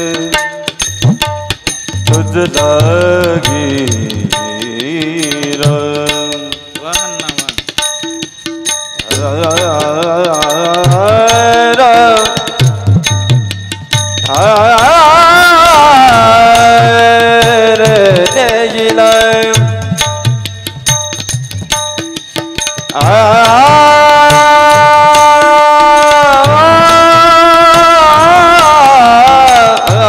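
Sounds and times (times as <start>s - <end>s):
hand drums playing: 0.0s - 30.0s
person singing long ornamented notes: 2.0s - 7.6s, 9.0s - 13.1s, 14.2s - 20.5s, 22.8s - 30.0s.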